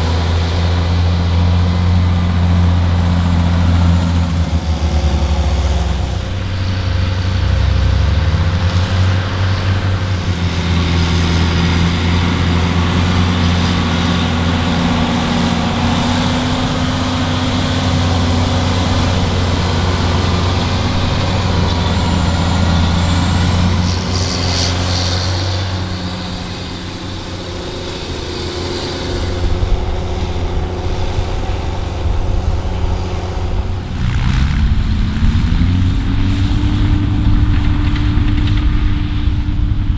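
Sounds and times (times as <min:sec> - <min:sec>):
diesel farm machine engine running: 0:00.0 - 0:39.9.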